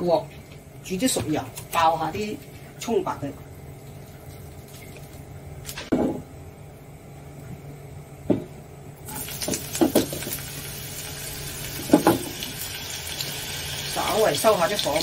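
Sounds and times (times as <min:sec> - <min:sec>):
food sizzling in hot oil: 0:09.0 - 0:15.0.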